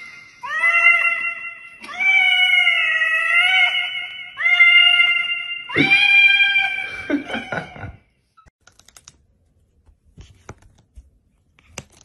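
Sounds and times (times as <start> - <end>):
cat meowing: 0.5 - 6.9.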